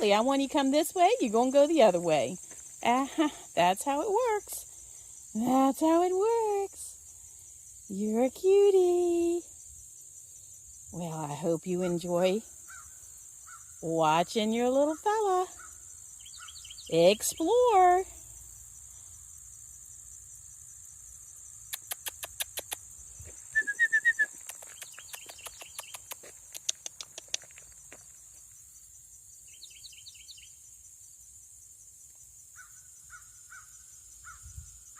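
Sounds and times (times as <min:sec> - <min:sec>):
high insect drone: 0:00.0 - 0:34.9
birds chirping: 0:14.4 - 0:18.0, 0:23.4 - 0:28.0
sharp clicks: 0:21.7 - 0:22.8, 0:24.3 - 0:27.5.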